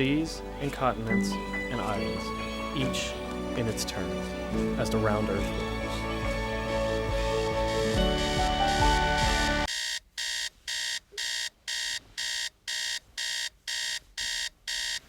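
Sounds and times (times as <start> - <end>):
background music: 0.0 - 9.7
alarm clock beeping: 8.7 - 15.0.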